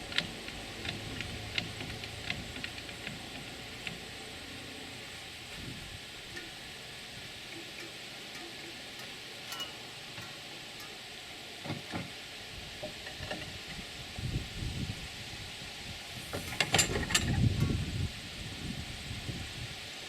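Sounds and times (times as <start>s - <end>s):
steady hiss: 0.0s - 20.0s
clicks and knocks of metal parts: 7.5s - 11.0s.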